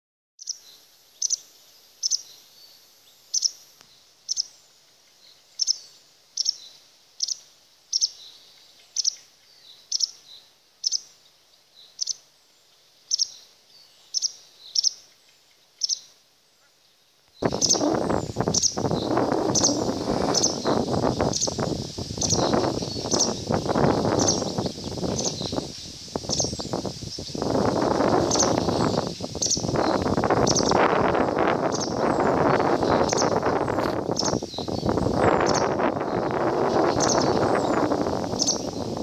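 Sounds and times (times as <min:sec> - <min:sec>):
loud rushing noise: 0:17.4 - 0:24.2
wagtail short sharp high calls: 0:17.4 - 0:38.8.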